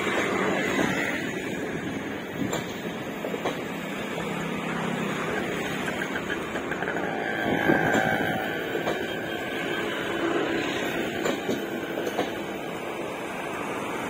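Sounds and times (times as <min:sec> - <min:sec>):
train wheels rumbling on rail: 0:00.0 - 0:14.0
wheel clicks and knock: 0:05.3 - 0:07.1.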